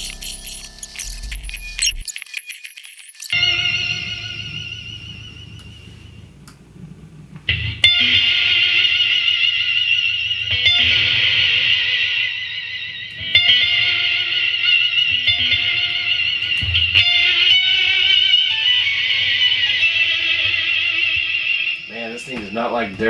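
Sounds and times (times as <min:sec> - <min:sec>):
distorted electric guitar with reverb: 0:07.5 - 0:23.0.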